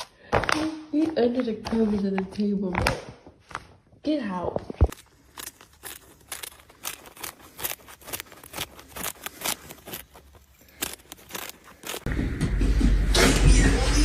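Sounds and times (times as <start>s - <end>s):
light crinkles and clicks: 4.9s - 12.1s.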